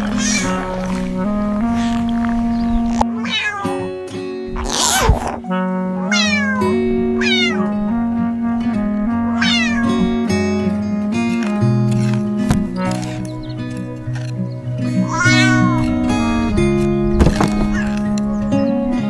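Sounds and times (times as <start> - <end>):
cat meowing: 0.0 - 2.1, 2.9 - 4.0, 6.1 - 7.8, 9.4 - 10.1, 15.0 - 16.0
gentle background music: 0.0 - 19.0.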